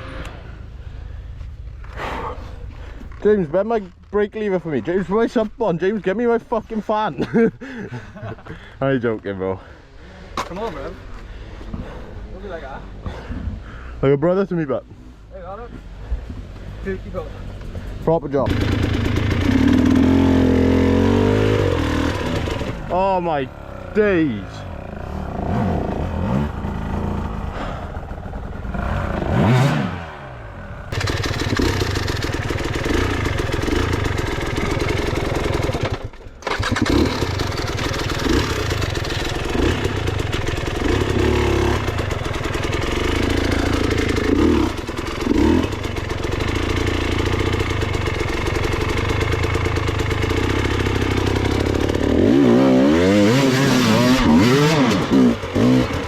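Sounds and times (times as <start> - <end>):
motorcycle engine revving: 17.3 - 56.0.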